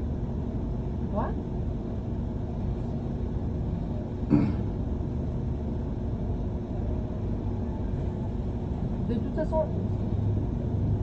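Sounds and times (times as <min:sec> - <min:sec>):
bus engine low rumble: 0:00.0 - 0:11.0
road noise: 0:00.0 - 0:11.0
person coughing or grunting: 0:04.3 - 0:04.7.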